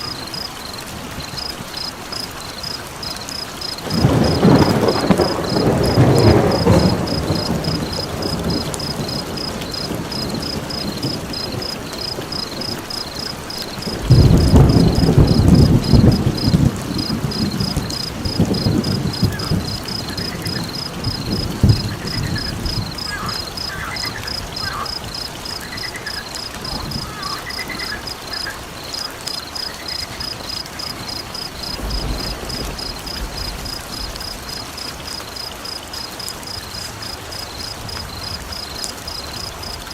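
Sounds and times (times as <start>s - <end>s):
frog calls: 0.0s - 34.6s
insects chirping: 0.0s - 39.9s
deep thunder rumbles: 3.6s - 29.0s, 29.8s - 34.7s.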